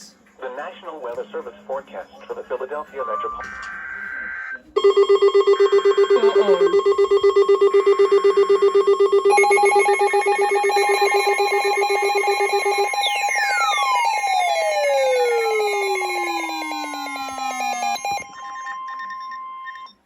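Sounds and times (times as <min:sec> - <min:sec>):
electronic alarm beeping: 0:03.2 - 0:20.0
higher electronic beeping: 0:03.2 - 0:20.0
falling electronic sweeps: 0:09.9 - 0:18.7.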